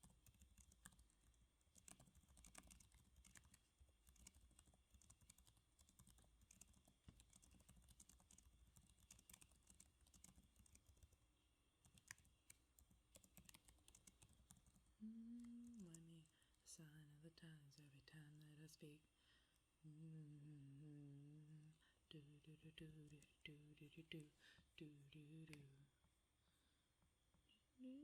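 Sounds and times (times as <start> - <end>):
computer keyboard typing: 0.0 - 11.2, 11.8 - 16.3
person speaking: 15.0 - 19.1, 19.8 - 25.9, 27.5 - 28.0.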